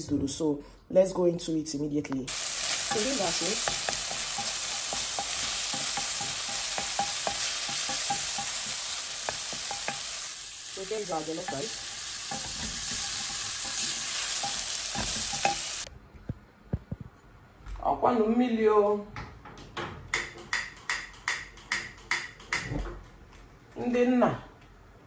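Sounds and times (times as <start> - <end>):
spatula scraping a pan: 2.3 - 10.4, 11.2 - 15.9
shrimp sizzling in hot oil: 2.3 - 15.9.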